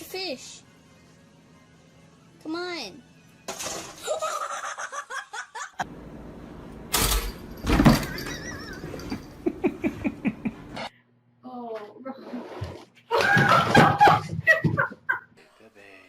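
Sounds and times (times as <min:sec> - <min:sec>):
people laughing: 0:04.0 - 0:05.8, 0:08.3 - 0:10.8, 0:13.1 - 0:15.4.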